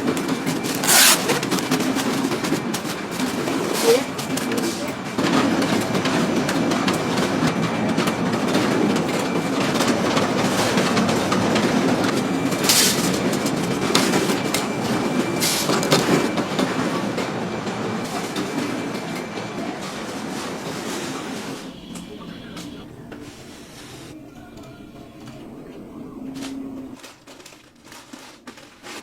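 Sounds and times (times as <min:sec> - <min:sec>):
knitting machines clattering: 0:00.0 - 0:29.0
thin high whine: 0:21.0 - 0:27.0.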